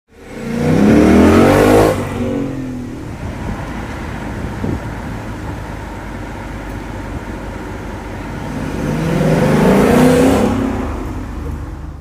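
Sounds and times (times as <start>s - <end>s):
car engine revving: 0.1s - 6.0s, 7.3s - 11.6s.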